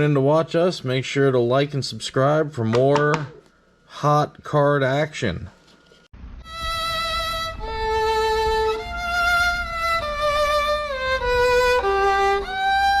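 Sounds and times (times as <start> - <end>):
slow melody of long held notes: 6.4 - 13.0.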